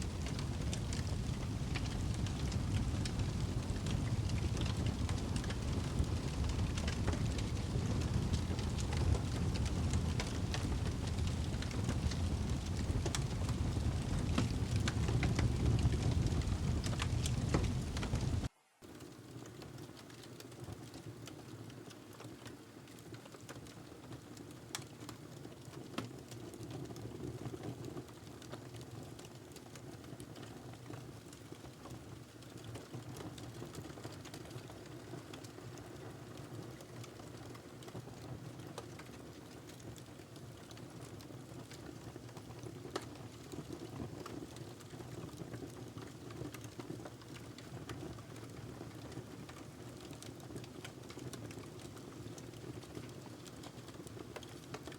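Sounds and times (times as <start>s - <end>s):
sharp fire pops: 0.0s - 18.5s
fire flames rushing: 0.0s - 19.0s
fire crackling: 0.0s - 22.4s, 23.0s - 54.9s.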